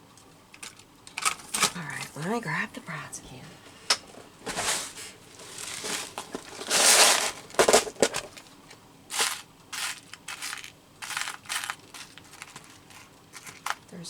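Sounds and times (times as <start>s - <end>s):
metal brads rattling in container: 0.5s - 2.3s, 4.5s - 8.5s, 9.1s - 14.0s.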